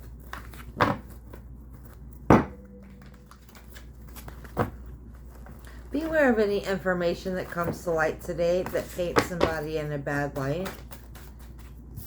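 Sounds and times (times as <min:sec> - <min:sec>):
faint card rustling: 0:10.4 - 0:12.0.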